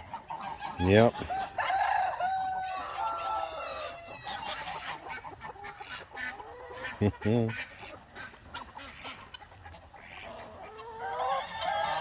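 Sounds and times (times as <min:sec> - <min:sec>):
chickens clucking: 0:00.0 - 0:12.0
rooster crowing: 0:01.3 - 0:04.4, 0:10.8 - 0:12.0.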